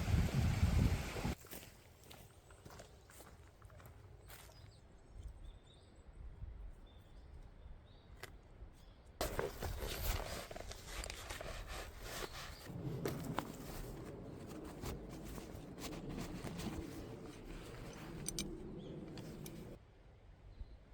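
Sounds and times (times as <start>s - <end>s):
footsteps crunching on forest floor: 1.4s - 4.8s, 9.2s - 18.0s.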